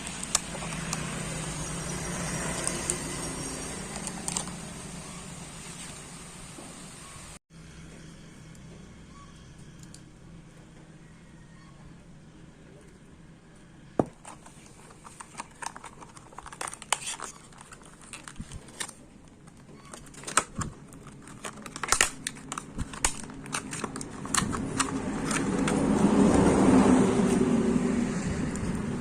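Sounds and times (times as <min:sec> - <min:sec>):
small parts clicking and crinkling: 0:14.2 - 0:25.8.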